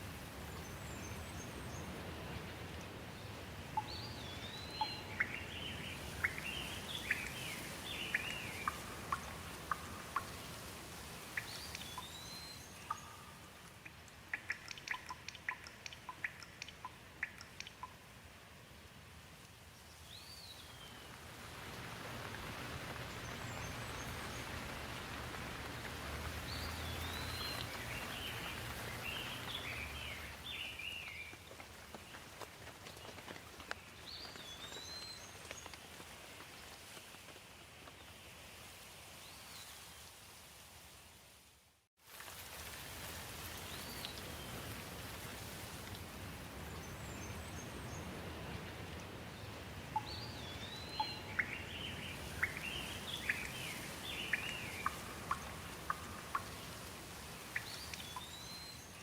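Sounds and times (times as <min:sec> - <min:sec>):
water drips: 0:00.0 - 0:18.4, 0:19.4 - 0:37.3, 0:42.1 - 0:59.0
steady rain: 0:00.0 - 0:59.0
birds chirping: 0:03.2 - 0:10.6, 0:23.0 - 0:31.3, 0:49.9 - 0:56.8.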